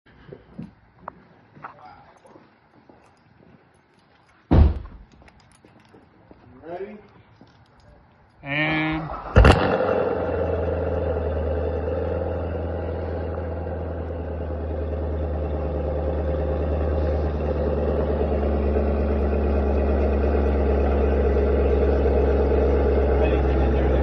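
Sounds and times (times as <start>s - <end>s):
car engine idling: 9.1s - 24.0s.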